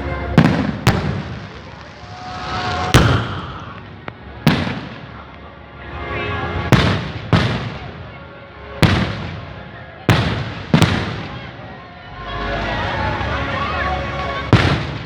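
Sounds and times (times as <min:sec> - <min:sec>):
fireworks hiss: 0:00.4 - 0:05.3
fireworks bangs: 0:00.4 - 0:05.4, 0:10.1 - 0:11.4, 0:14.5 - 0:15.0.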